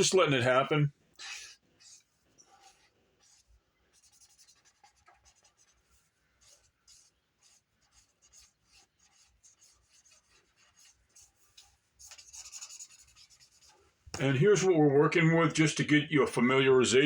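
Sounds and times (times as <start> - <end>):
pen scratching on cardstock: 1.2 - 14.3.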